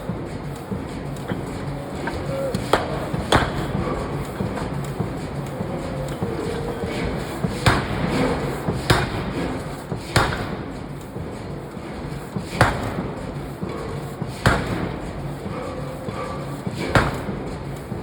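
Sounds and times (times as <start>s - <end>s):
steady industrial din: 0.0s - 18.0s.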